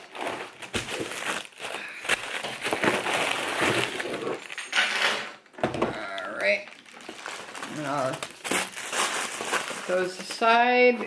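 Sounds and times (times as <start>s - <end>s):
paper rustling and crinkling: 0.0s - 4.7s, 5.6s - 11.0s.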